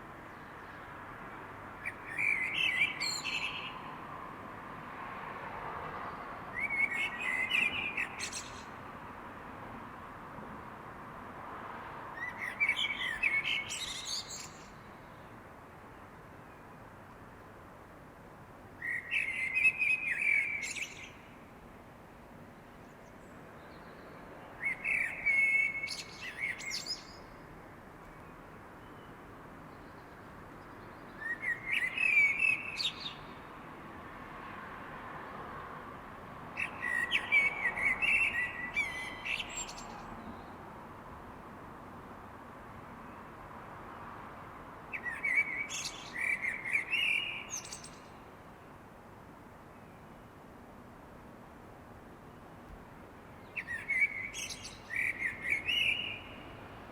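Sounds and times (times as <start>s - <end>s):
songbird singing: 0.1s - 4.0s, 6.0s - 8.9s, 12.1s - 16.9s, 18.7s - 21.7s, 22.3s - 33.6s, 36.6s - 40.7s, 44.9s - 48.4s, 52.4s - 56.9s.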